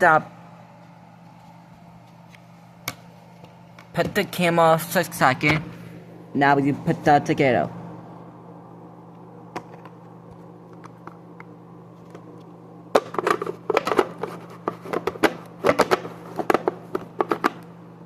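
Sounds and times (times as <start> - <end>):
faint steady hum: 0.0 - 18.0
plastic parts clicking and knocking: 14.7 - 17.6.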